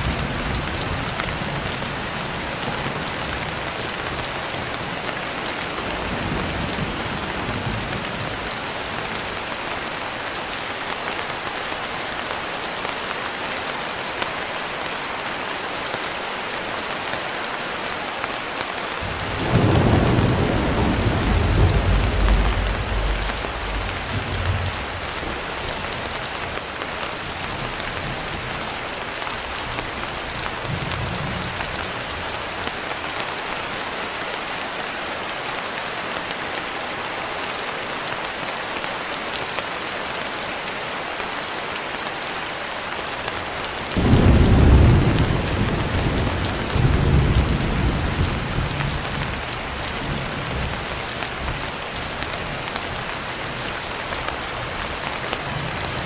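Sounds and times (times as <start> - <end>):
thunder rumbling: 0.0 - 9.4, 19.0 - 26.2, 44.0 - 50.8
heavy rain: 0.0 - 56.0
loud thunderclap: 19.0 - 25.8, 44.0 - 49.4.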